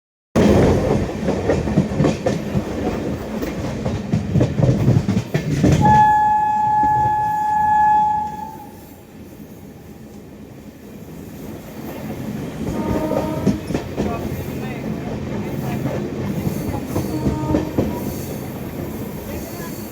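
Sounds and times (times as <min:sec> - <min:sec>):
train wheels clattering over rail joints: 0:00.4 - 0:05.9, 0:11.9 - 0:19.9
train horn blast: 0:05.8 - 0:09.0, 0:12.7 - 0:13.8, 0:17.0 - 0:18.0.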